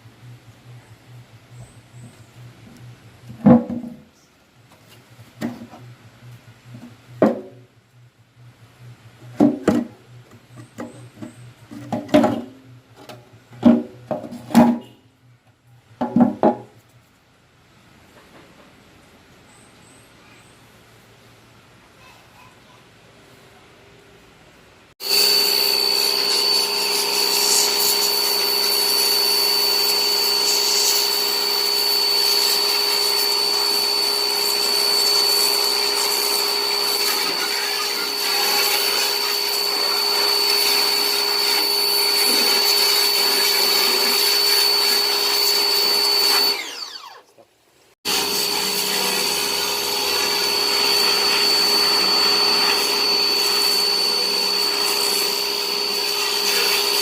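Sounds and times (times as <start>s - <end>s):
electric motor whining: 0.0s - 3.6s, 25.0s - 47.3s, 48.1s - 57.0s.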